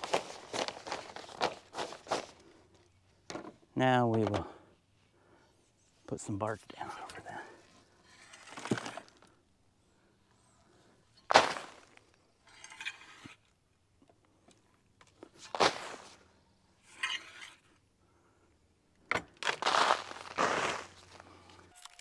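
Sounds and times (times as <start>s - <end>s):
bark chips dumped on plastic sheeting: 11.3s - 12.0s, 19.4s - 21.1s.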